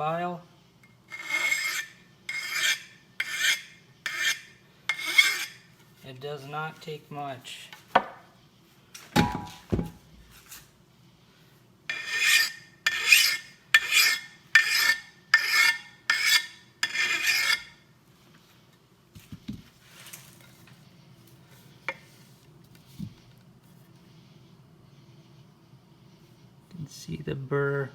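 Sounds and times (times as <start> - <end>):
hand file rasping on steel: 1.1 - 5.6, 11.9 - 17.7.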